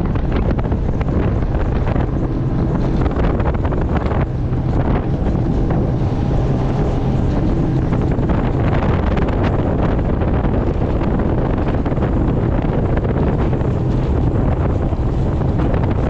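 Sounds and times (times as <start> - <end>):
boat engine droning: 0.0 - 16.0
wind buffeting microphone: 0.0 - 16.0.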